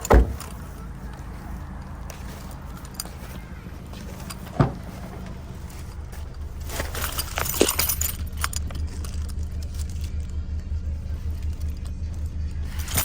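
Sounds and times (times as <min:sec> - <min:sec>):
low hum of a car: 0:00.0 - 0:13.0
clicks and rattling: 0:01.8 - 0:10.4, 0:11.3 - 0:13.0.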